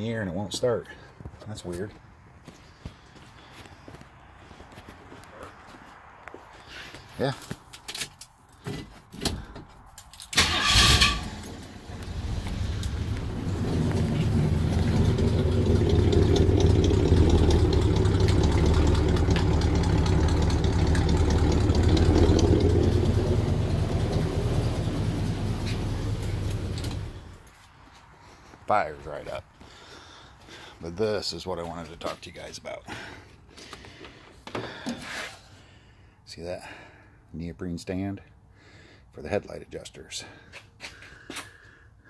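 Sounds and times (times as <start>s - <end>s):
car engine running: 10.8s - 27.4s.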